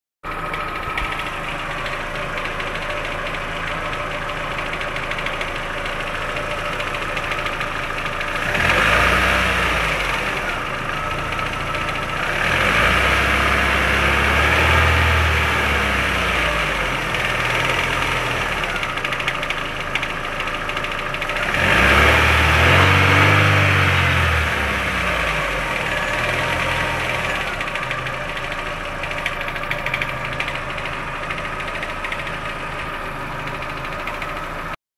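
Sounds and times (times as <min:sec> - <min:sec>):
car engine idling with knock: 0:00.2 - 0:23.9, 0:24.6 - 0:34.8
car engine revving: 0:08.2 - 0:19.4, 0:21.2 - 0:31.2.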